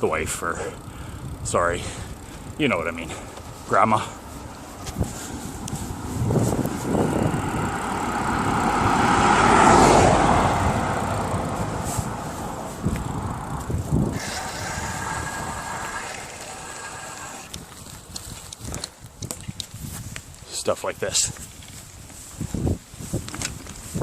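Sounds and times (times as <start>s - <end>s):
car driving past: 6.9s - 17.5s.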